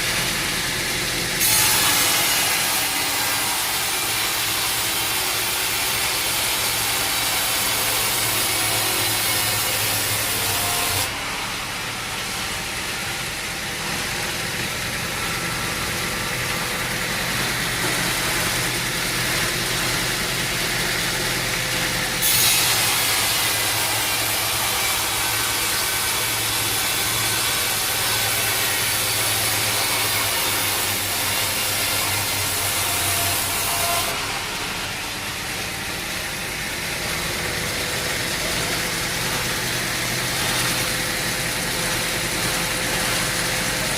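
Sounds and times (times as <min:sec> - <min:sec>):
saw cutting through log: 0:00.0 - 0:43.9
engine running: 0:11.1 - 0:22.2.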